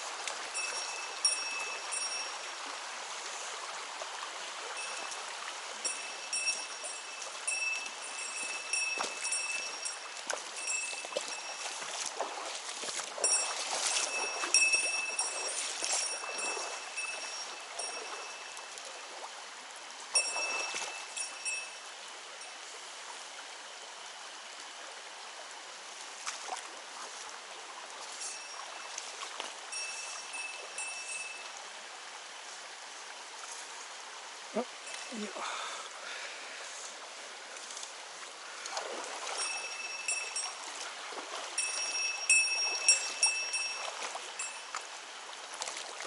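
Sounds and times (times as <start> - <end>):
irregular water splashing: 0.0 - 46.0
mountain stream running: 0.0 - 46.0
thin high tone: 4.8 - 11.9, 13.2 - 19.0, 20.1 - 22.6, 29.7 - 31.6, 34.6 - 35.5, 39.4 - 40.7, 41.6 - 44.8.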